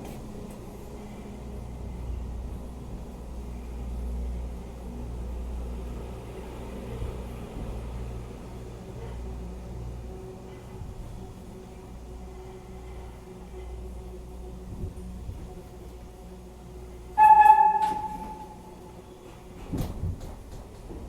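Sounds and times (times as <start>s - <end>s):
subway train rumbling in tunnel: 0.0s - 21.0s.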